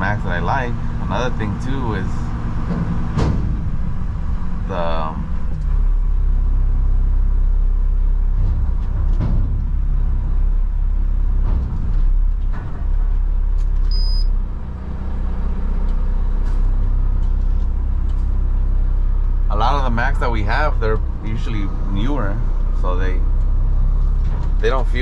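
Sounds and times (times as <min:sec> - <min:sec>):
clunks: 0:00.0 - 0:06.3, 0:08.1 - 0:25.0
diesel truck engine running: 0:00.0 - 0:25.0
high-pitched beep: 0:13.9 - 0:14.3.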